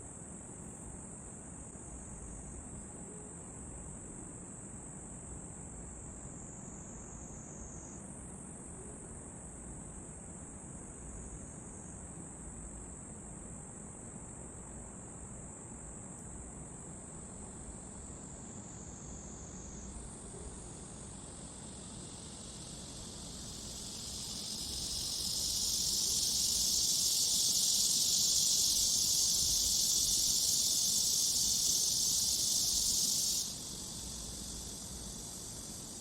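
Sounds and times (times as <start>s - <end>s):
insects trilling: 15.8s - 36.0s
loud hissing buzz: 21.0s - 36.0s.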